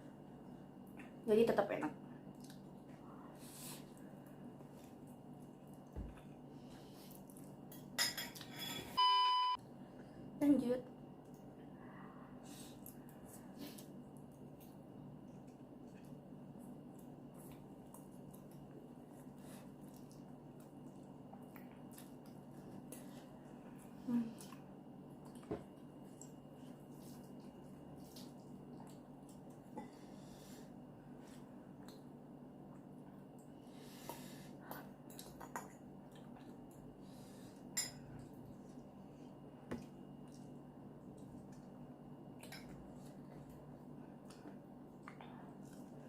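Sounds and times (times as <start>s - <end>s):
steady low hum: 0.0s - 46.0s
utensils clinking against a dish: 7.9s - 9.0s
person chewing noodles: 12.7s - 30.7s.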